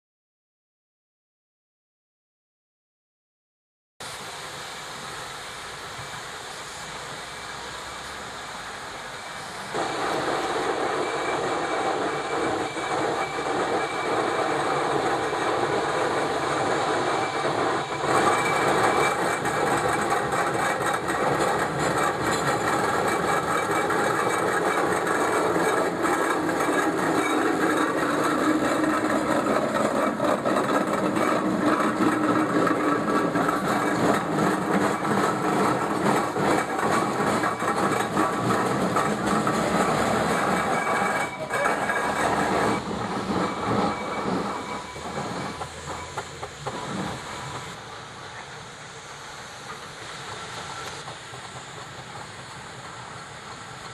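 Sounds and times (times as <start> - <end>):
steam traction engine rumbling: 4.0 - 53.9
fast dense clanking: 17.9 - 47.0.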